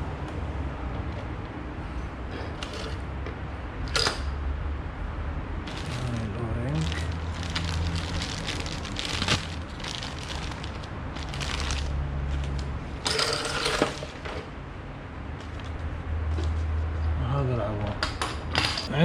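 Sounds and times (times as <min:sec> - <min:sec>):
plastic rustling crackle: 0:05.7 - 0:14.2.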